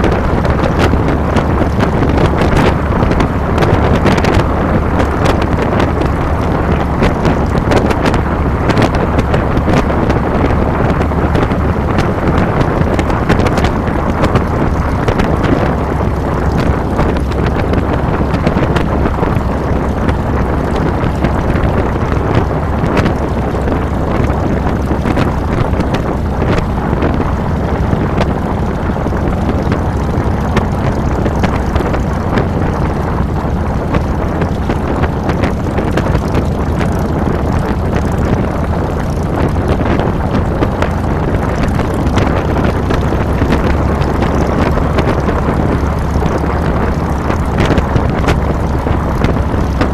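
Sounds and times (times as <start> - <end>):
motorcycle engine running: 0.0 - 49.9
wind buffeting microphone: 0.0 - 49.9.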